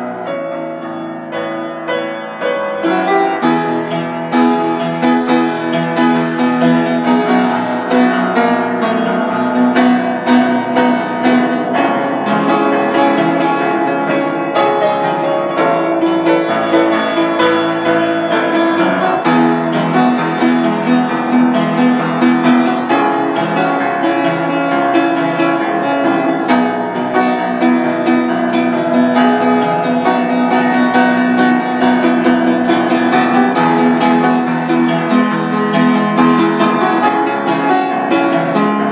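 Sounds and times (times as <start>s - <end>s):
solo keyboard playing: 0.0s - 38.9s.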